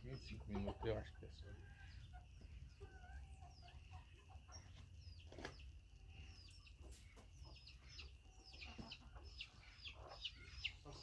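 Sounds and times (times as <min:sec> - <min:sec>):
chickens clucking and chirping: 0:00.0 - 0:11.0.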